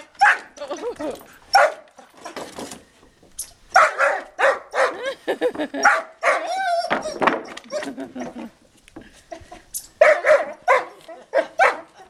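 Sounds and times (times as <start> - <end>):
dog barking: 0.2 - 0.6, 1.5 - 1.9, 3.7 - 5.1, 5.8 - 7.2, 10.0 - 12.0
dog whining: 6.2 - 8.3.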